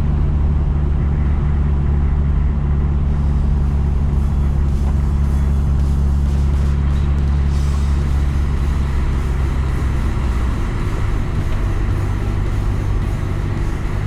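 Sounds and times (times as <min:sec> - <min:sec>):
car engine drone: 0:00.0 - 0:14.0
tyre road noise hiss: 0:02.9 - 0:14.0.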